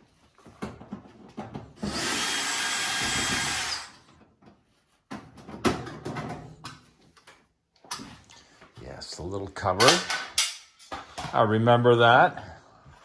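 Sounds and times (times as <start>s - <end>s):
power drill running: 1.8s - 4.0s.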